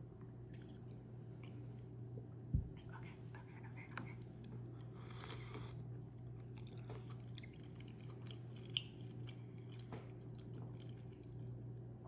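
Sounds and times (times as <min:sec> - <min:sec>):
steady low hum: 0:00.0 - 0:12.0
close chewing with crunches: 0:04.4 - 0:11.7.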